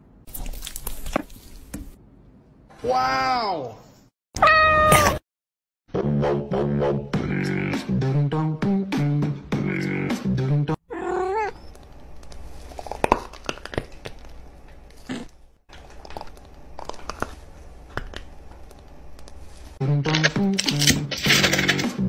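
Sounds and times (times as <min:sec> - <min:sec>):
cat meowing: 0:04.4 - 0:05.2, 0:10.9 - 0:11.6.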